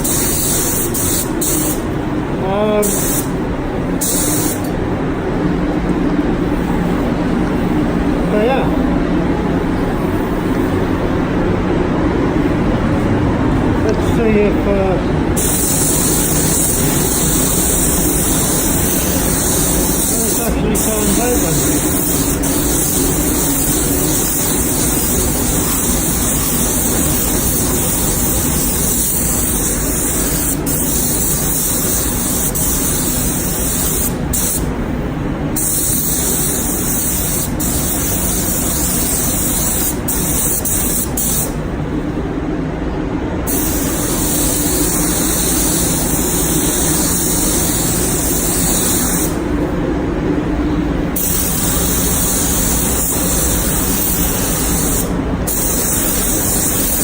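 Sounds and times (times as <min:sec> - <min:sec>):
spray gun hissing: 0:00.0 - 0:02.0, 0:02.6 - 0:04.7, 0:15.4 - 0:41.7, 0:43.5 - 0:49.6, 0:51.1 - 0:57.0
low machinery hum: 0:00.0 - 0:57.0.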